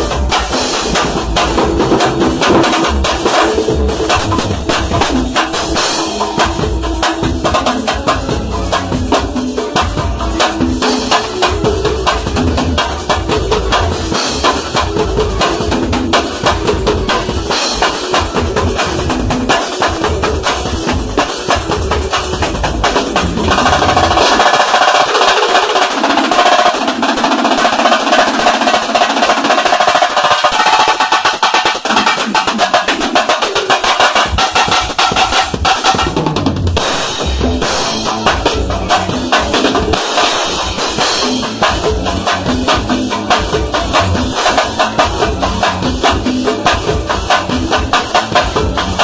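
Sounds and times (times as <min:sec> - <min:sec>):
deep bass drums: 0:00.0 - 0:10.8, 0:36.3 - 0:49.0
fast dense drum strokes: 0:00.0 - 0:49.0
high-pitched hand-drum strokes: 0:00.0 - 0:49.0.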